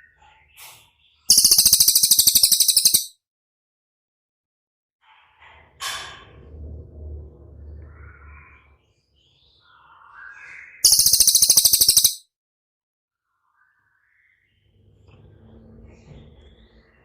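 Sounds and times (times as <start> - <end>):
bird chirps: 1.3 - 3.1, 10.8 - 12.2
bird rattling trill: 1.3 - 3.1, 10.8 - 12.2.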